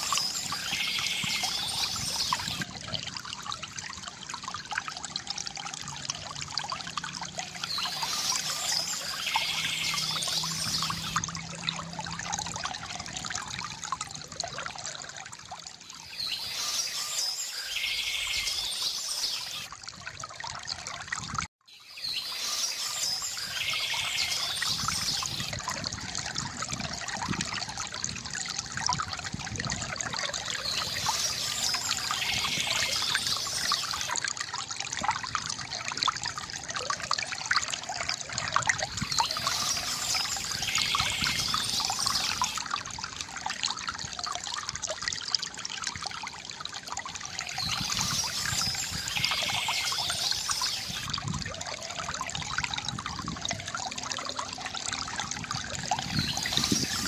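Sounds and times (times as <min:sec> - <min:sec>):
fountain water trickling and splashing: 0:00.0 - 0:57.0.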